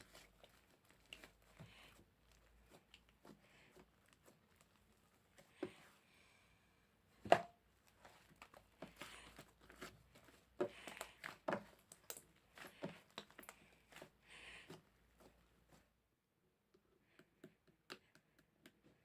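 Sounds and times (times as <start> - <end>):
slime squished by hand: 7.8 - 15.7.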